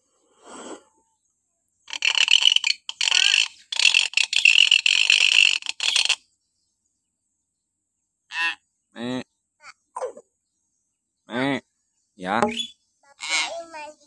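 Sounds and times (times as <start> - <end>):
myna bird screeching: 12.5 - 13.6.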